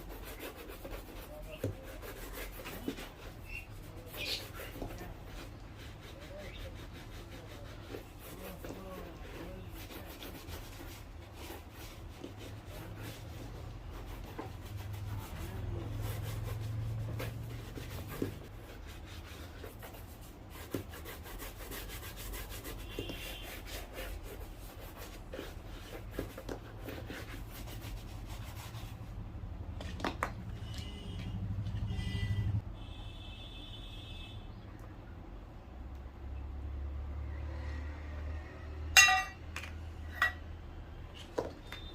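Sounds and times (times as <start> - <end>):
rubbing strokes on a shoe: 0.0 - 29.2.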